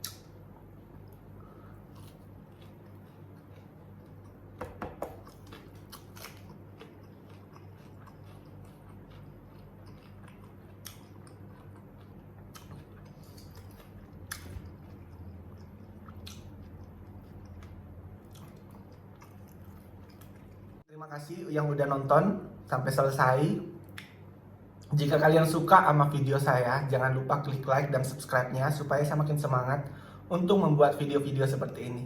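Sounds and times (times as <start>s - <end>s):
chewing fried chicken: 0.0s - 20.8s
steady low hum: 0.0s - 32.0s.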